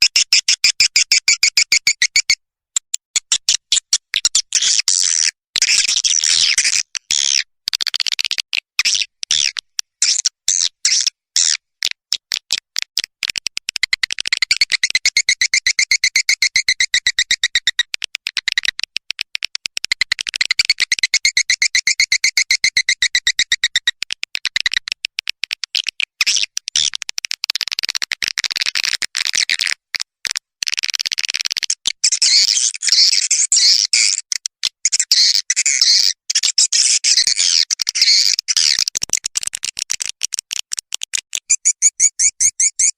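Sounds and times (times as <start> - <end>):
swiftlet chirping clicks: 0.1 - 4.3, 38.6 - 42.9.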